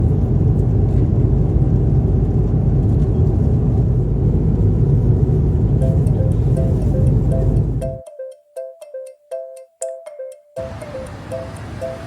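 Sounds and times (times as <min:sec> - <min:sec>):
vehicle rumbling in motion: 0:00.0 - 0:08.0, 0:10.6 - 0:12.0
faint musical notes: 0:05.8 - 0:12.0.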